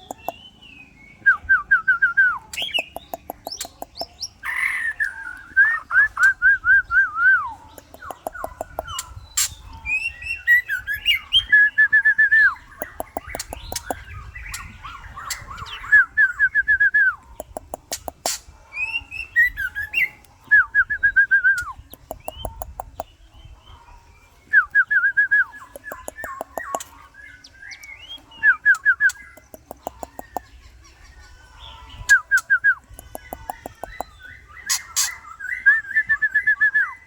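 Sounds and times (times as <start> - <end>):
bird dry clicks: 0.0 - 0.4, 2.6 - 4.2, 7.7 - 9.6, 12.8 - 14.1, 17.4 - 18.4, 21.6 - 23.1, 25.7 - 27.0, 28.7 - 30.5, 32.3 - 34.1
bird singing whistled notes: 0.0 - 7.6, 8.3 - 17.3, 18.7 - 23.1, 24.4 - 29.5, 32.0 - 32.9, 33.8 - 37.0.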